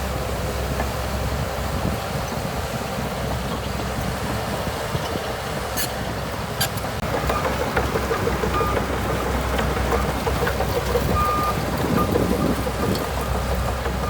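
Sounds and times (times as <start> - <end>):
bulldozer diesel engine running: 0.0 - 14.0
clicks and rattles: 7.0 - 14.0.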